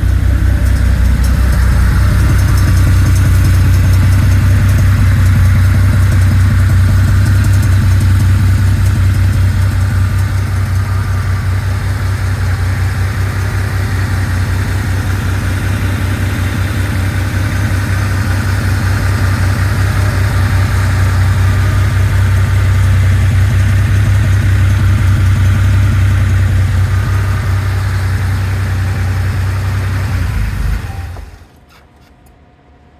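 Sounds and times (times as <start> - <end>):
car engine idling: 0.0 - 31.6.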